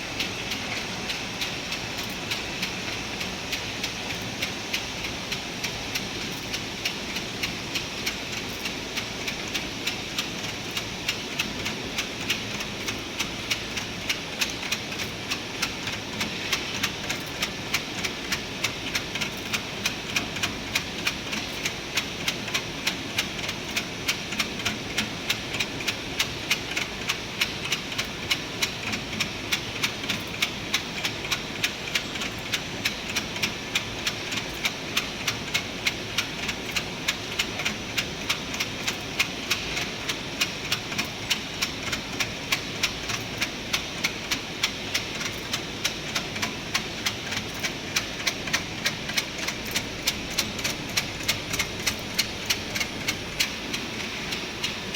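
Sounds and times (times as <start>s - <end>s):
regular mechanical clack: 0.1s - 54.9s
steady machinery noise: 36.4s - 54.9s.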